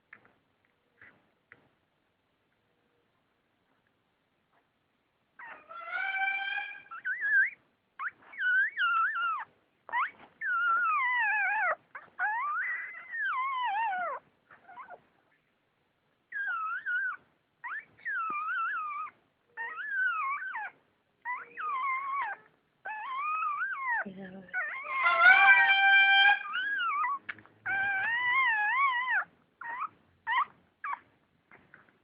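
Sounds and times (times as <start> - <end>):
puppies crying in high squeals: 5.4 - 15.0, 16.3 - 31.6.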